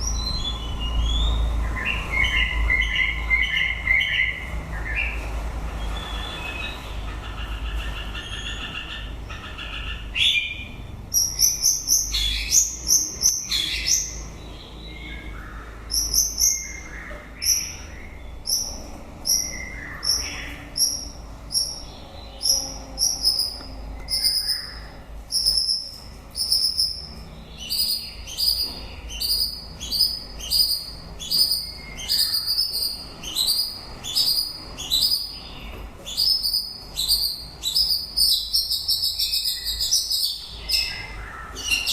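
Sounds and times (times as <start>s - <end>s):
bird singing whistled notes: 15.9s - 41.9s.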